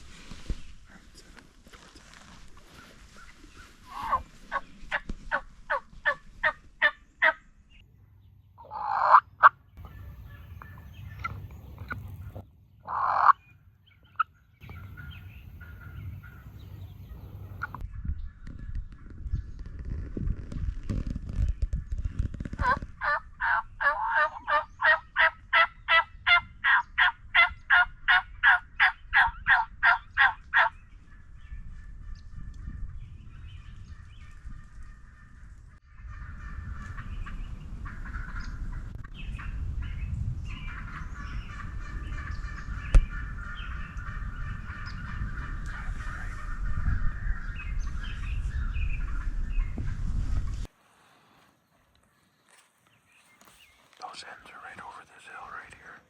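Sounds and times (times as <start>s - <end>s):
wild turkey yelping: 2.8s - 7.4s, 8.6s - 13.4s, 14.0s - 17.8s, 22.6s - 30.8s.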